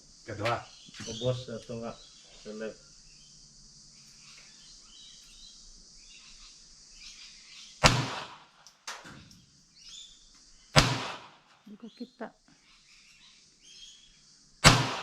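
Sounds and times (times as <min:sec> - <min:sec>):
gunshot: 0:07.8 - 0:09.2, 0:10.8 - 0:11.6, 0:14.6 - 0:15.0
faint sharp crack: 0:07.8 - 0:10.0, 0:10.8 - 0:11.6, 0:14.6 - 0:15.0.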